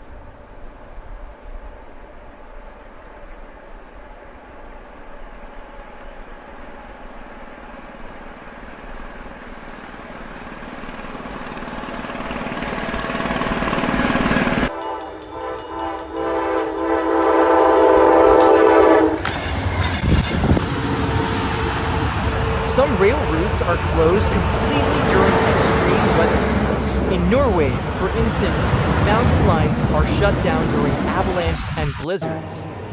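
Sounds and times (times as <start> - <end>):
train rumbling and clattering: 0.0 - 32.9
train horn blast: 14.7 - 19.8.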